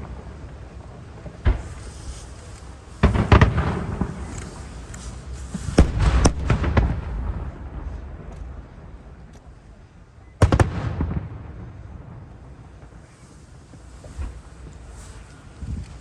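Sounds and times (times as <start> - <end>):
firework shells bursting: 1.2 - 9.5.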